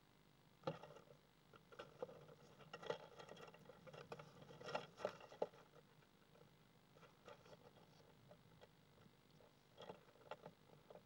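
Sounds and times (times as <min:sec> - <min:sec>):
bird scratching and tapping: 0:01.7 - 0:05.7.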